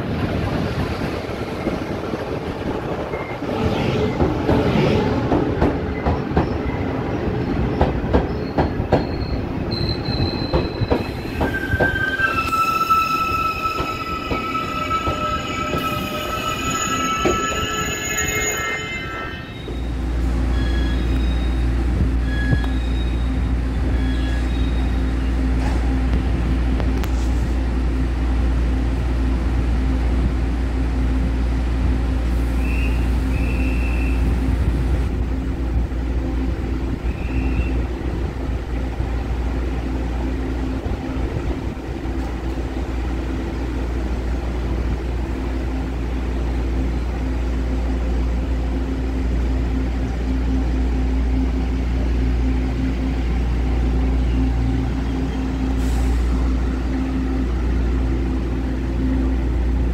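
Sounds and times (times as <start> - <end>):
train rumble: 0.0 - 59.9
faint high squeaks: 8.3 - 25.3.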